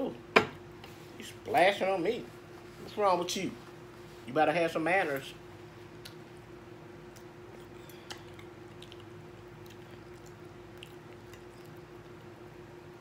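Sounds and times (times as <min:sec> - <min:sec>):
faint steady hum: 0:00.0 - 0:13.0
person chewing food: 0:07.0 - 0:12.5.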